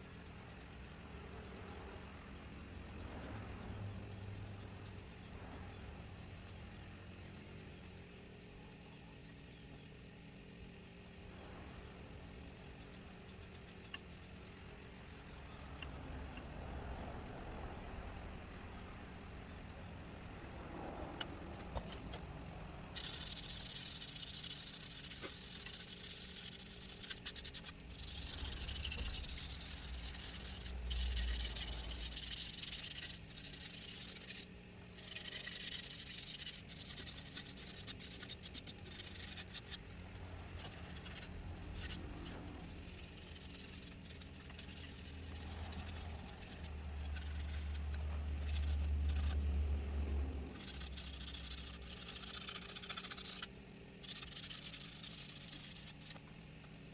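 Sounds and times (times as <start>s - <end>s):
hissing rub on spinning wood: 0.0s - 56.9s.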